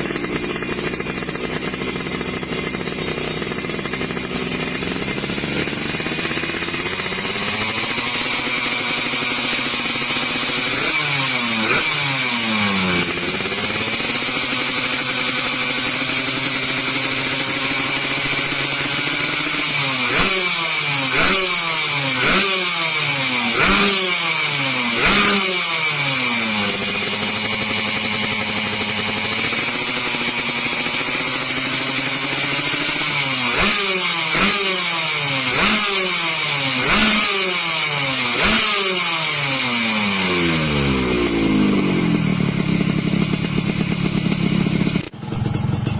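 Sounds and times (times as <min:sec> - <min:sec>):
motorcycle engine idling: 0:00.0 - 0:45.9.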